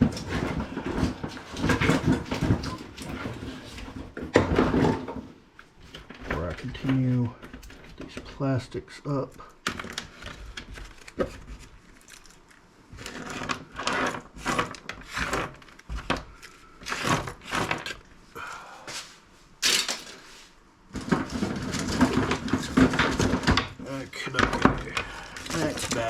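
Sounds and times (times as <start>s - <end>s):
scrap pieces clattering on workbench: 19.6s - 26.0s.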